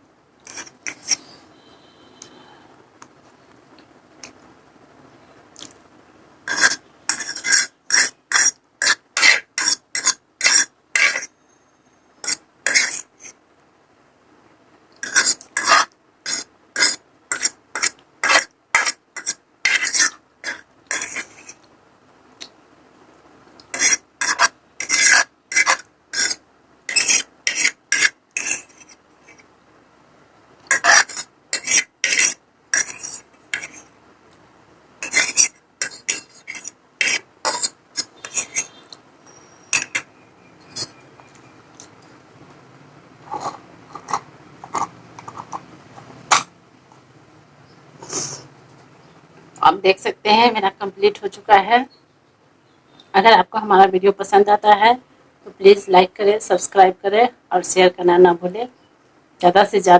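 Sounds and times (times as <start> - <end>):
close-miked eating noodles: 0.4 - 2.4, 6.5 - 11.3, 12.2 - 13.4, 15.0 - 21.8, 23.5 - 29.5, 30.6 - 34.4, 35.0 - 39.1, 43.2 - 46.5.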